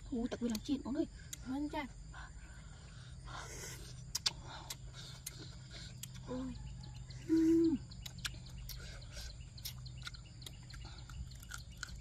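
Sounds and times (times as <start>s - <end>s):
person chewing wetly: 3.8s - 7.2s, 7.9s - 12.0s.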